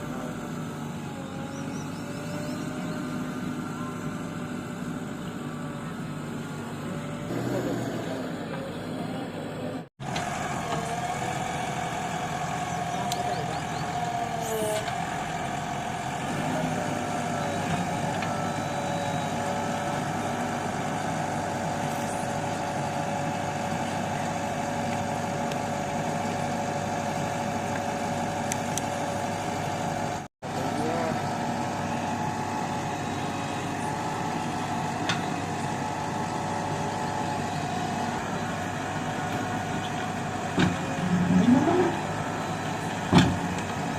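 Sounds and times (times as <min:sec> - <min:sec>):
held whine: 0:00.0 - 0:15.4, 0:16.2 - 0:43.9
machine engine running: 0:00.0 - 0:43.9.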